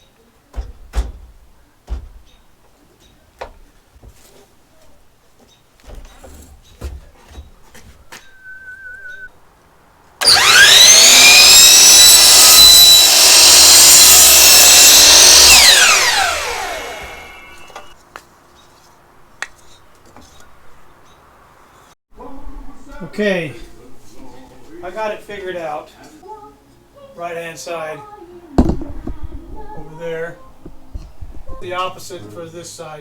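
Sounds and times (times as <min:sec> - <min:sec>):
wood knocking: 0:00.5 - 0:02.6, 0:28.6 - 0:29.9
electric saw whining: 0:10.2 - 0:18.0.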